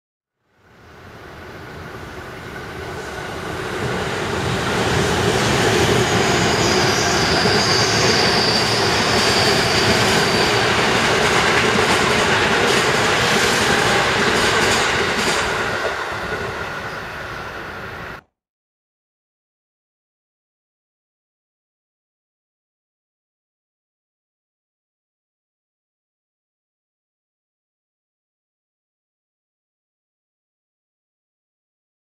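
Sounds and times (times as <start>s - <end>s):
train wheels rumbling on rails: 1.1s - 18.2s
high steady squeal: 2.9s - 11.4s.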